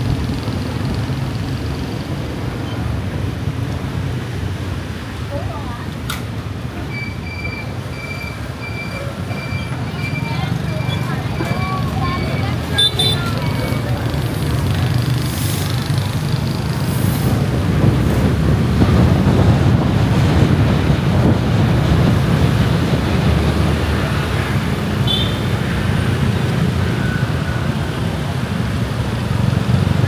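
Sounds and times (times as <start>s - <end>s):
road noise: 0.0s - 30.0s
wind on microphone: 15.1s - 24.0s.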